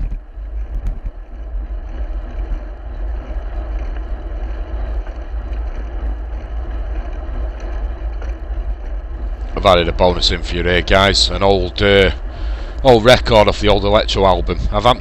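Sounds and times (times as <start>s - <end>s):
wind rumbling on microphone: 0.0s - 15.0s
hiss of wet road and rain: 12.2s - 12.9s.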